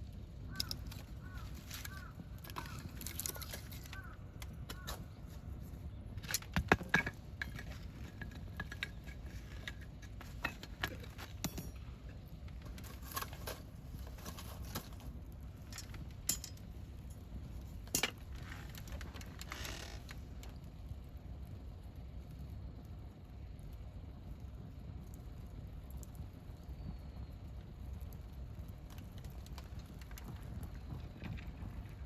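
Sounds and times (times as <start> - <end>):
steady low rumble: 0.0 - 19.5
campfire crackling and popping: 0.0 - 32.0.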